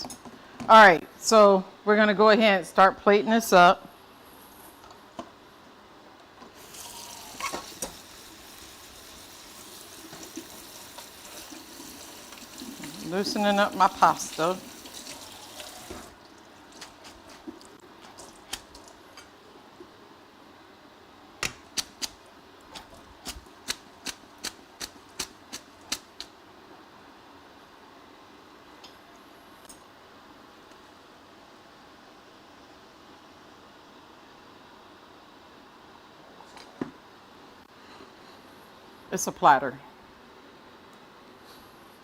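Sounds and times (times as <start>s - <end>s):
tap running water: 6.6s - 16.8s.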